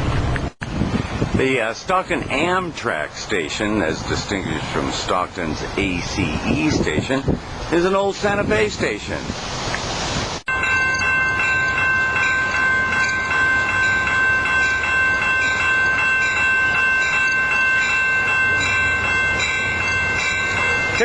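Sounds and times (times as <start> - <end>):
train rumble: 0.0 - 21.0
railway warning bell ringing: 10.5 - 21.0.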